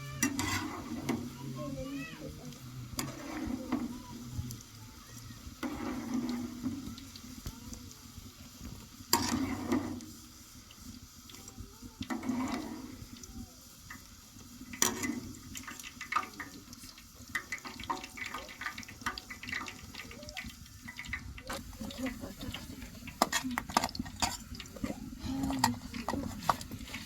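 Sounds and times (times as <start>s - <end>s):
dough sizzling in hot oil: 0.0s - 27.0s
utensil scraping in a pot: 0.0s - 27.0s.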